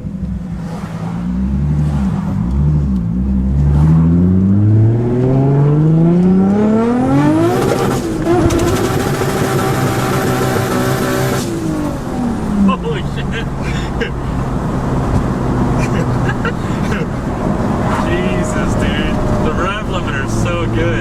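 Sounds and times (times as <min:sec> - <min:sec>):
car engine revving: 0:00.0 - 0:21.0
engine stuttering on rev limiter: 0:03.7 - 0:11.5.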